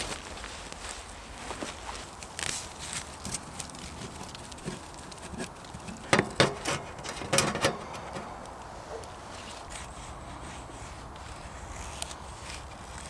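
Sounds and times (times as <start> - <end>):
faint rustling: 0.0 - 13.0
sharp knocks and cracks: 3.2 - 9.2.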